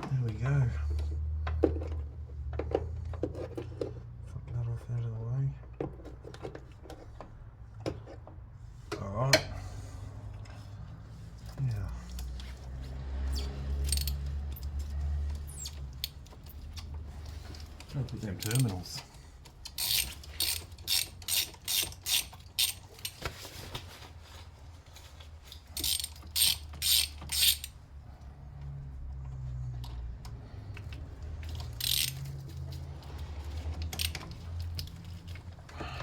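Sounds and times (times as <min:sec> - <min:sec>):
ratchet wrench clicking: 0:13.4 - 0:17.0, 0:17.6 - 0:18.8, 0:19.6 - 0:23.2, 0:25.5 - 0:27.8, 0:30.8 - 0:32.9, 0:33.7 - 0:35.4.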